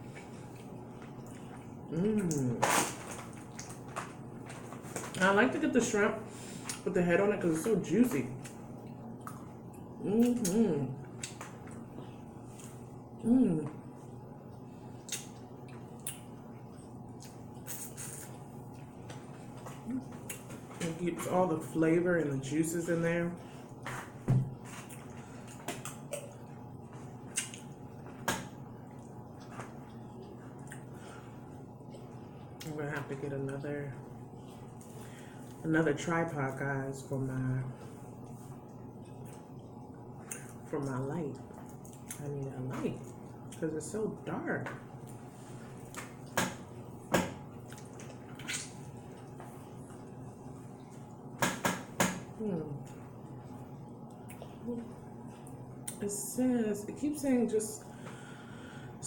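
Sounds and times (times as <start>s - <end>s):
wet smacking of eating: 0.0s - 5.2s, 8.4s - 12.9s, 14.4s - 20.8s, 23.7s - 31.0s, 41.3s - 42.2s, 44.9s - 52.0s.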